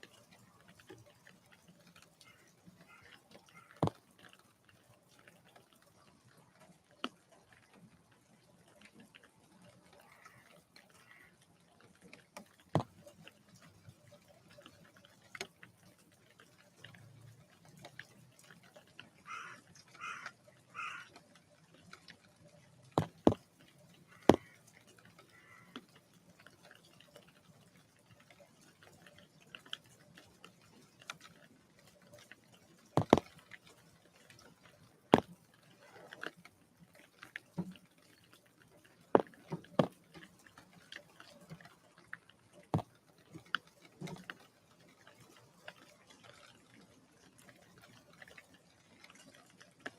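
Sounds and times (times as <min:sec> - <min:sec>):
harsh bird calls: 0:19.3 - 0:21.1
birds pecking taps: 0:23.0 - 0:26.0, 0:33.0 - 0:33.3.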